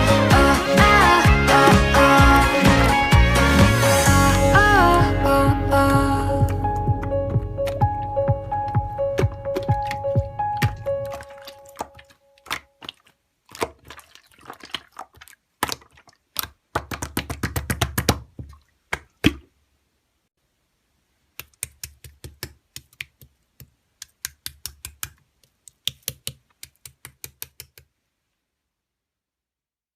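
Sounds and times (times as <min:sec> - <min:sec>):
rapid keyboard-like clicking: 0:24.0 - 0:27.9.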